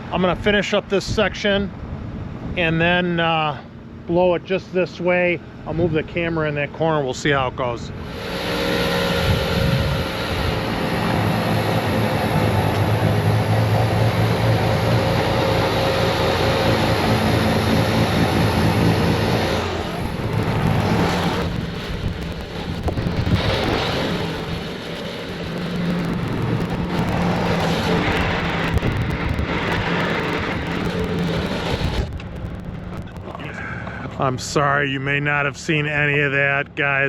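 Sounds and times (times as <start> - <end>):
diesel engine running hard: 1.8 - 34.6
snow being blown: 8.0 - 32.2.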